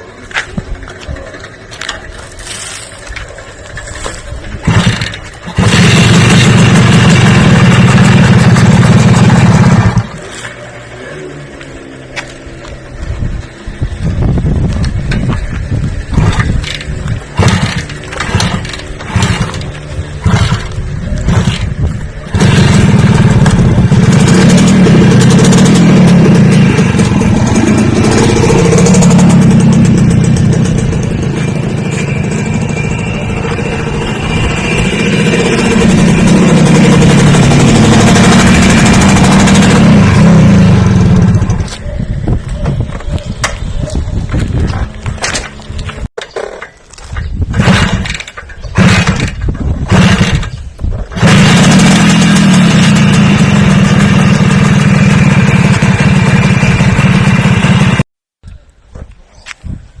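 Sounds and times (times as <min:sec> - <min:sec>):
engine running and revving: 0:03.7 - 0:46.1, 0:47.5 - 0:58.1.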